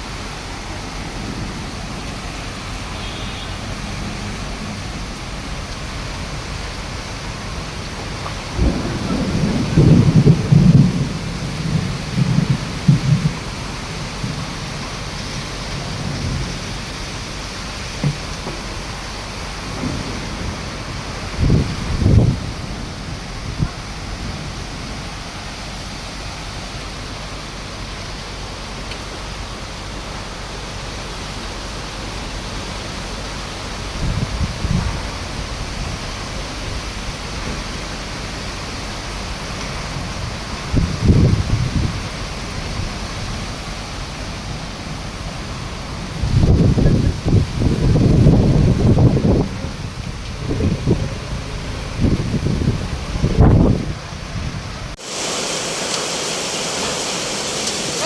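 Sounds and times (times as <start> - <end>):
heavy rain pouring: 0.0 - 58.0
thunder rumbling: 3.6 - 25.1, 39.1 - 43.6, 44.2 - 58.0.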